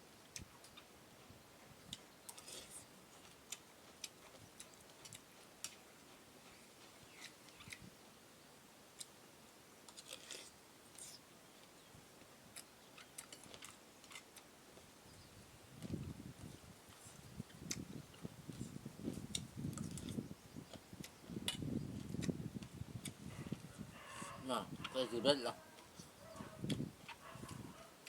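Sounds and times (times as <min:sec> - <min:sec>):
person chewing food: 0:01.8 - 0:08.0, 0:09.8 - 0:11.8, 0:12.5 - 0:14.9, 0:15.7 - 0:25.0, 0:25.7 - 0:28.0.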